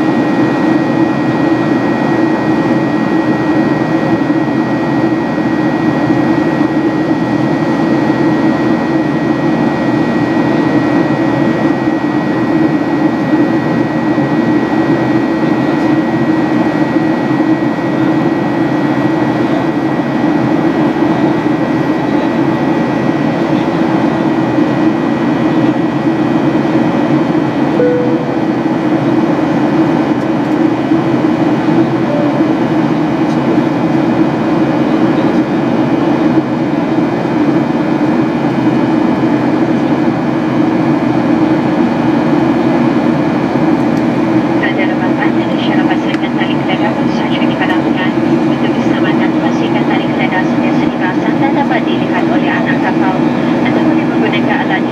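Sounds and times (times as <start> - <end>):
airplane cabin rumble: 19.2 - 34.2
faint high tone: 27.8 - 29.0.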